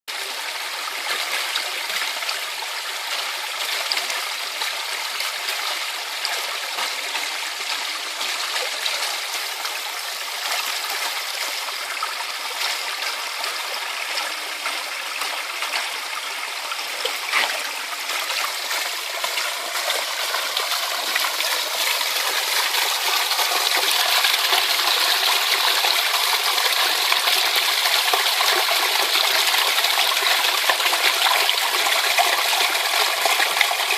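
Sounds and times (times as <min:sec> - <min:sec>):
stream running over rocks: 0:00.1 - 0:33.9.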